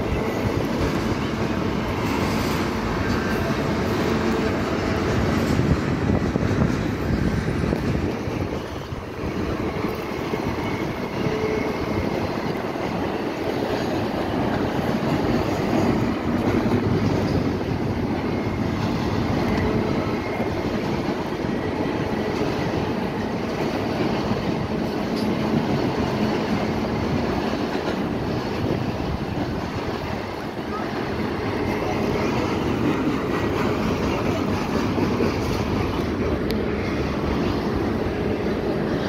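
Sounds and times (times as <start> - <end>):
train wheels rumbling on track: 0.0 - 39.0
faint high wheel squeal: 8.6 - 13.4.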